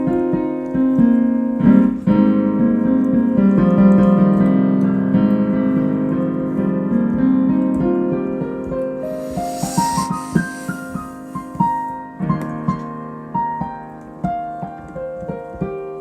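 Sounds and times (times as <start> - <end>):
solo piano: 0.0 - 16.0
soft hiss: 9.0 - 12.0.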